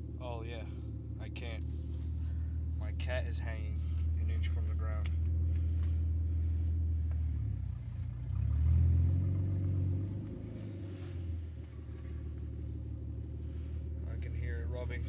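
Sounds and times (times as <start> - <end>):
car engine idling: 0.0 - 15.0
engine revving: 0.0 - 15.0.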